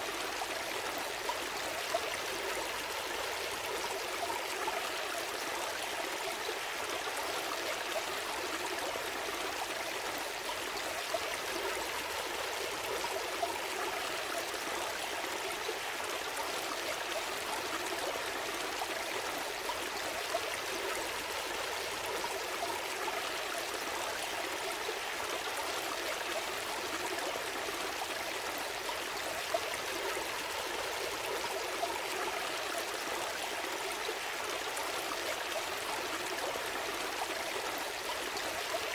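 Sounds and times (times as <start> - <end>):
small stream trickling: 0.0 - 38.9.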